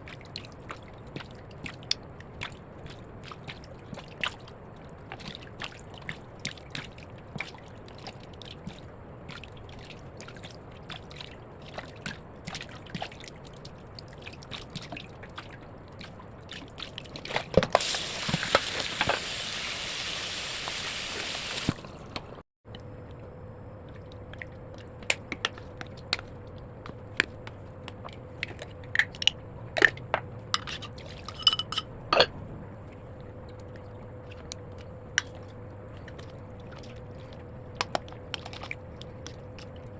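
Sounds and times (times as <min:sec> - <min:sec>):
faint hum: 0:17.8 - 0:39.9.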